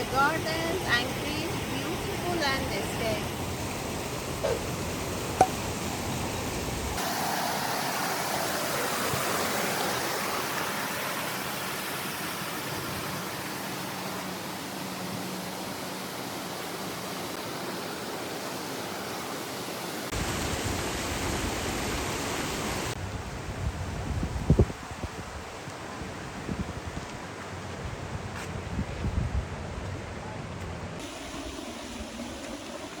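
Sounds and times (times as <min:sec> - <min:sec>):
rushing water: 0:00.0 - 0:23.0, 0:31.0 - 0:33.0.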